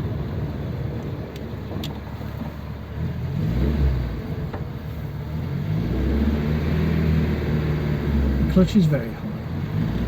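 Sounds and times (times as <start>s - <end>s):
car engine accelerating: 2.9s - 10.0s.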